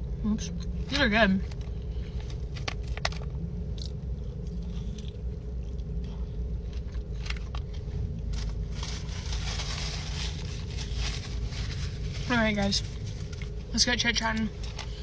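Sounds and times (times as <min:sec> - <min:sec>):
low hum: 0:00.0 - 0:15.0
chewing and biting fries: 0:01.5 - 0:11.5.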